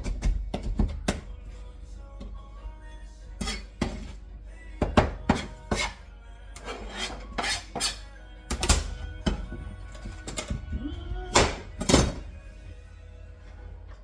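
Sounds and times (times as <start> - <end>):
faint background music: 0.0 - 14.0
dishes and utensils clinking: 6.6 - 12.3.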